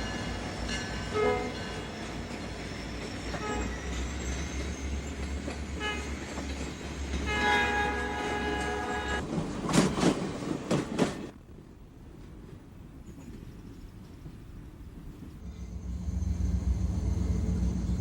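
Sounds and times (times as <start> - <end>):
diesel locomotive engine rumbling: 0.0 - 18.0
locomotive horn toots: 1.1 - 1.6, 3.4 - 3.9, 5.8 - 6.2, 7.2 - 9.2
locomotive horn blast: 1.2 - 1.6, 3.4 - 3.8, 7.2 - 9.2.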